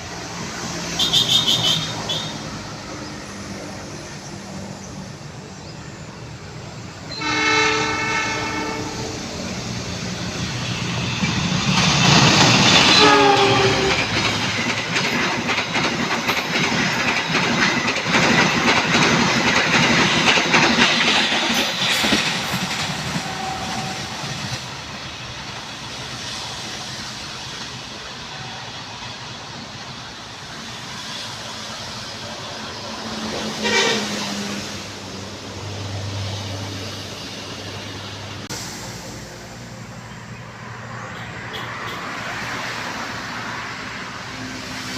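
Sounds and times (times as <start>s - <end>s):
train horn: 0.9s - 2.5s, 7.1s - 9.3s, 12.9s - 14.2s, 23.1s - 24.2s, 33.6s - 34.6s
train wheels clattering: 9.4s - 35.2s.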